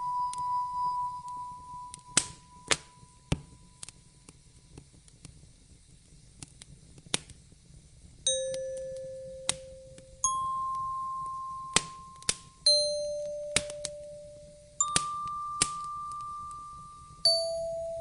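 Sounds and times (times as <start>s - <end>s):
soft ambient music: 0.0s - 4.0s, 8.7s - 18.0s
fireplace crackling: 0.0s - 18.0s
sharp pops of fire: 1.9s - 10.2s, 11.2s - 17.3s.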